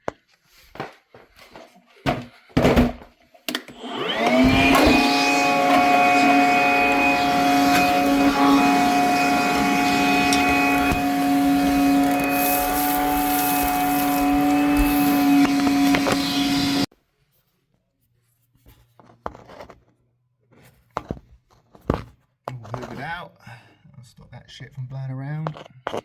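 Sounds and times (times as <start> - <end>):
vacuum cleaner whining: 2.8 - 16.9
faint knocks and handling: 18.2 - 23.1.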